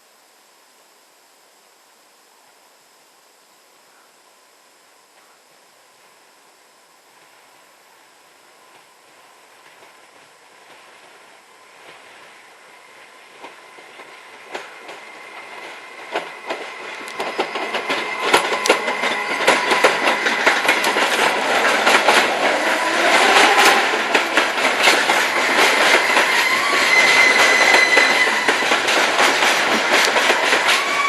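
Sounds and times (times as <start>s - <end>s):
freight train wheels clattering: 13.0s - 31.0s
high wheel squeal: 15.0s - 20.6s, 25.1s - 28.9s, 30.2s - 31.0s.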